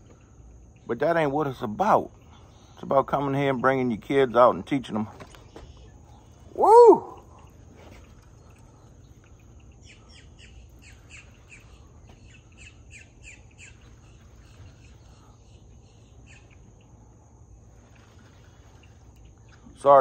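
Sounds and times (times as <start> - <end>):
high insect drone: 0.0 - 20.0
bird chirping: 5.2 - 17.3.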